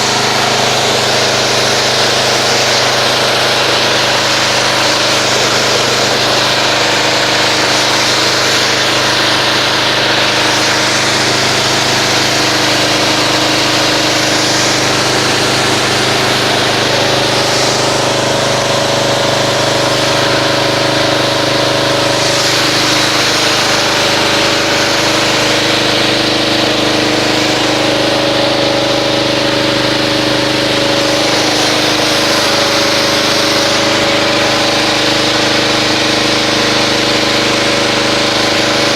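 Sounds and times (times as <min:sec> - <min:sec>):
pressure washer motor running: 0:00.0 - 0:38.9
water spray hissing: 0:00.0 - 0:38.9.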